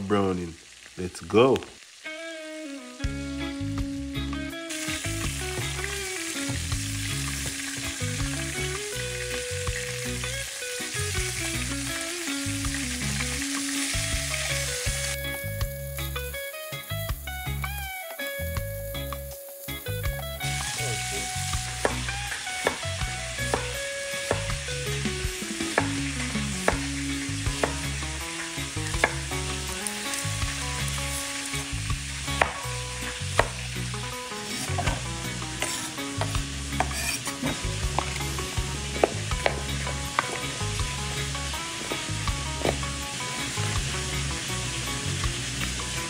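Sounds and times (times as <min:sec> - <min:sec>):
chicken sizzling in a pot: 0:00.0 - 0:46.0.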